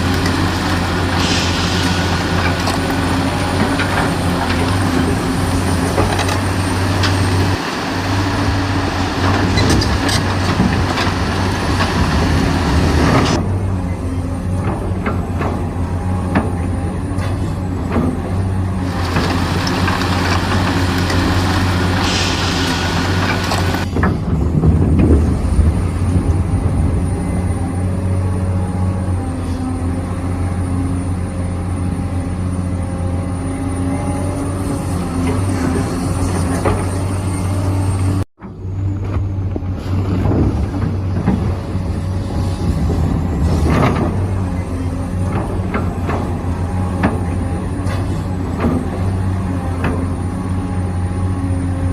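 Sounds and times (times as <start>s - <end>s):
model excavator humming: 0.0s - 51.9s
bright hiss: 1.2s - 2.4s, 22.0s - 23.6s.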